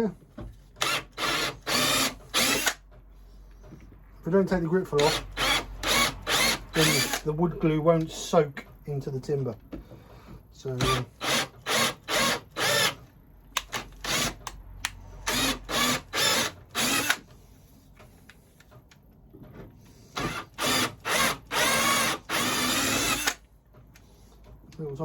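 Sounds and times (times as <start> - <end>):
power drill boring bursts: 0.8 - 2.8, 5.0 - 7.3, 10.8 - 13.0, 13.7 - 14.4, 15.2 - 17.2, 20.2 - 23.4.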